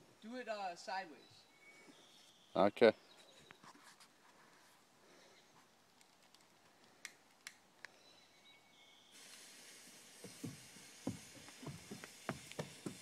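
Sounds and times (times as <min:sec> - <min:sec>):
firework fuse hissing: 0:09.1 - 0:13.0.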